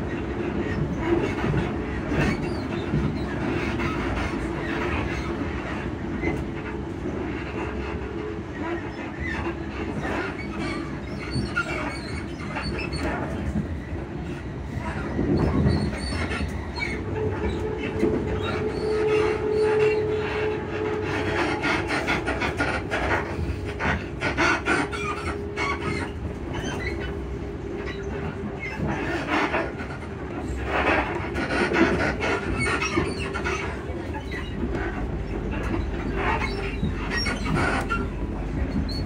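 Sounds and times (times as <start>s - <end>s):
train hum: 0.0s - 39.0s
train interior rumble: 0.0s - 39.0s.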